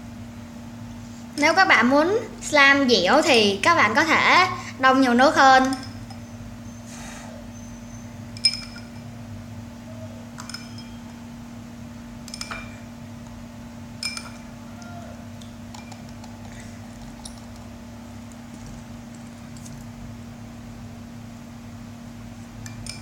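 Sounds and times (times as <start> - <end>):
steady low hum: 0.0 - 23.0
bowl clinking: 5.6 - 6.4, 8.0 - 9.2, 10.4 - 11.2, 12.2 - 13.0, 14.0 - 17.7, 22.6 - 23.0.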